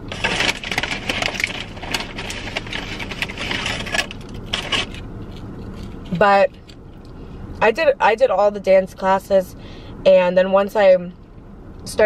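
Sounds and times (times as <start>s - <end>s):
crunching tortilla chips: 0.0s - 6.8s.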